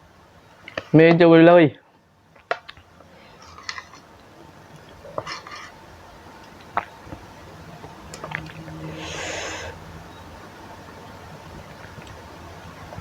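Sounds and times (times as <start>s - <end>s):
faint eating sounds: 3.0s - 10.0s.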